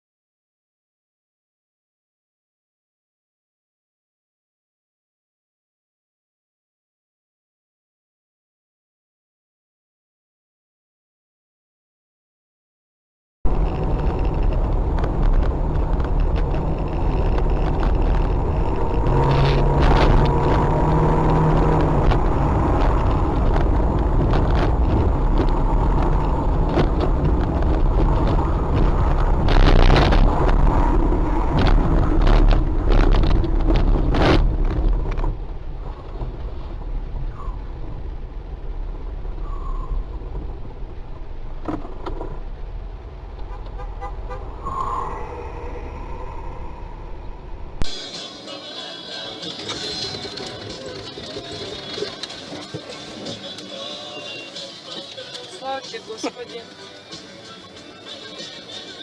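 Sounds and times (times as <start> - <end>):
car road and engine rumble: 13.5 - 59.0.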